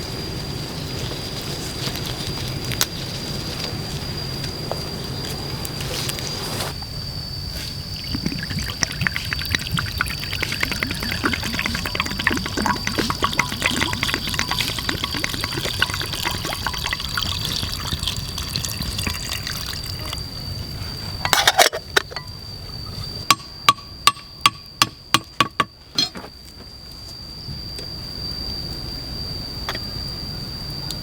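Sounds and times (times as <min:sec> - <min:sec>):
thin high whine: 0:05.5 - 0:24.4
water pouring: 0:07.9 - 0:20.2.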